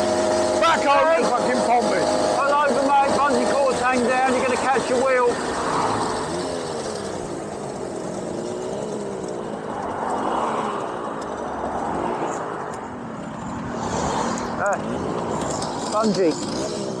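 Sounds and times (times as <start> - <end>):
road and wind noise: 0.0 - 17.0
small two-stroke moped engines: 0.0 - 17.0.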